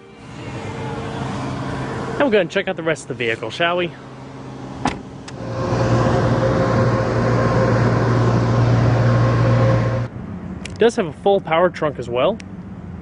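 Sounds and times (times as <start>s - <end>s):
trunk lid motor humming: 0.0s - 10.1s.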